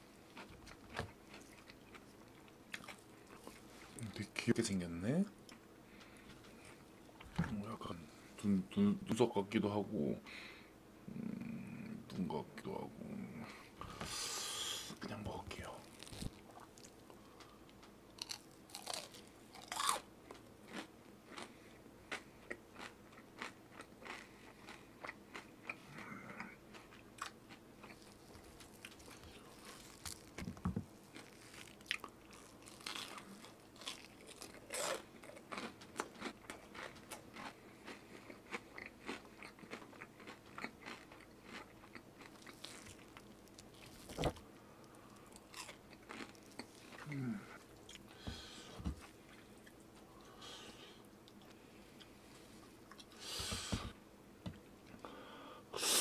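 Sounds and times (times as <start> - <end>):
crunchy food chewing: 0.2 - 4.2, 15.6 - 50.6.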